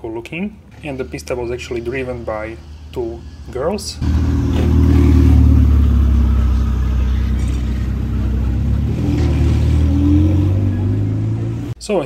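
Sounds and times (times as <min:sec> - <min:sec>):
car engine low rumble: 0:02.7 - 0:11.8.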